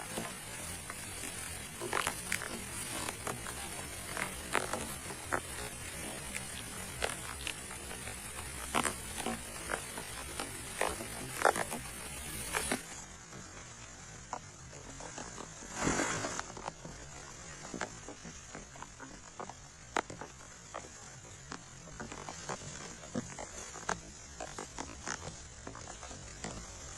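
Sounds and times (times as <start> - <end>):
rain falling: 0.0 - 13.0
short burst of noise: 15.7 - 16.5.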